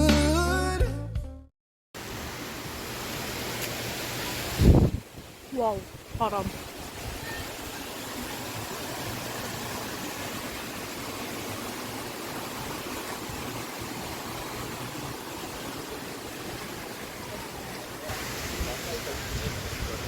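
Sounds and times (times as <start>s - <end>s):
wind buffeting microphone: 4.5s - 7.5s, 18.4s - 20.0s.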